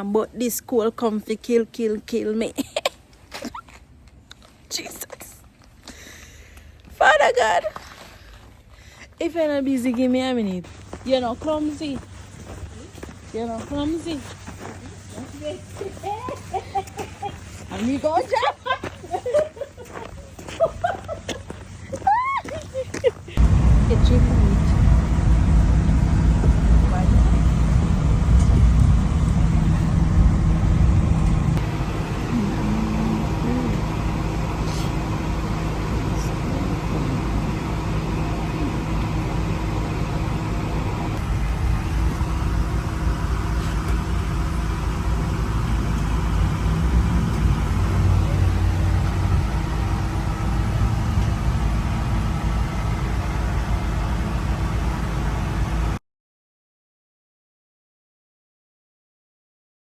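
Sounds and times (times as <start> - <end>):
car engine and road noise: 23.2 - 56.0.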